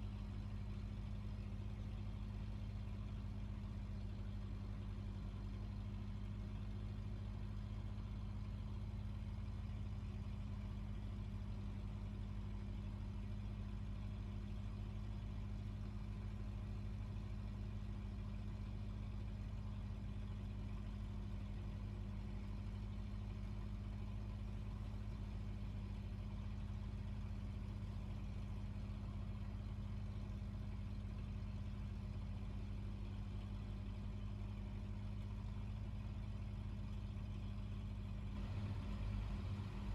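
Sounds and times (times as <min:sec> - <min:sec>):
boat engine droning: 0:38.4 - 0:39.9.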